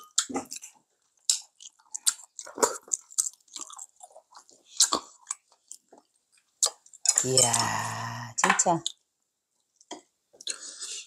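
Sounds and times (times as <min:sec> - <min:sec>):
wet chewing mouth sounds: 0:00.2 - 0:07.1.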